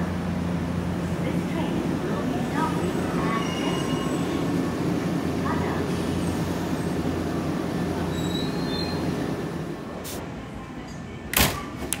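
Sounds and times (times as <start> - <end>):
electric train hum: 0.0 - 11.3
faint high wheel squeal: 2.8 - 4.4, 8.0 - 9.2.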